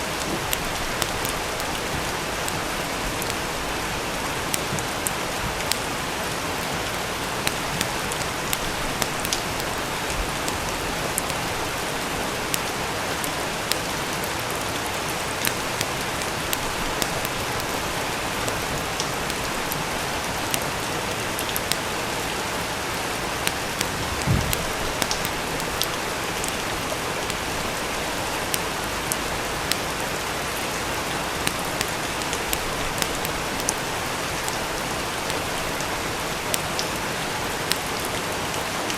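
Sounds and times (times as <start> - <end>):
steady rain: 0.0 - 38.9
fireplace crackling: 0.1 - 29.9
low thump: 24.1 - 24.7.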